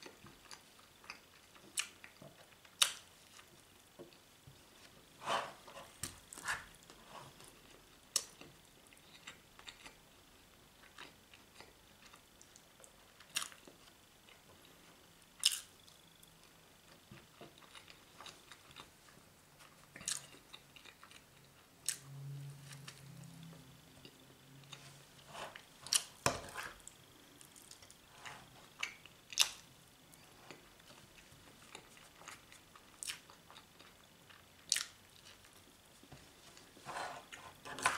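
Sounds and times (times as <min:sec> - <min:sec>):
person chewing food: 0:00.0 - 0:22.0, 0:22.6 - 0:37.9.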